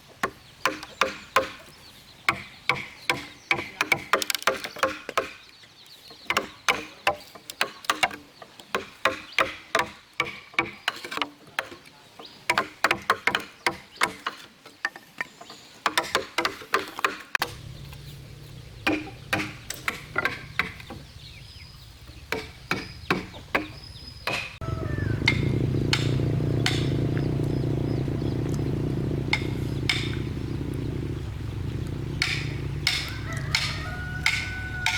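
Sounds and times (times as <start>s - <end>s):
scattered knocks: 17.4s - 21.4s, 22.0s - 34.9s
motor humming: 17.4s - 23.4s, 24.6s - 34.9s
hammer blows on wood: 22.3s - 27.4s, 32.2s - 34.9s.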